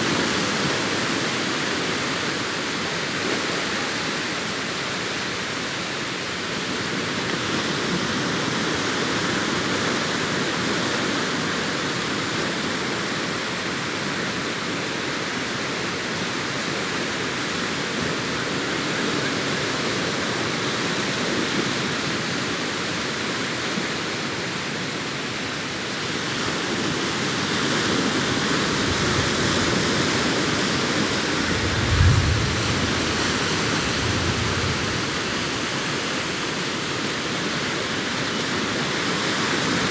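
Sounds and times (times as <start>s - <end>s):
surf washing up a beach: 0.0s - 39.9s
low thump: 31.4s - 34.8s.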